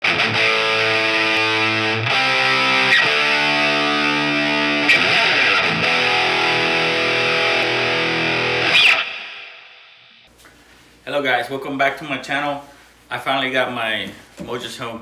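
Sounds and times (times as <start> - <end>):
distorted electric guitar chords: 0.0 - 10.2.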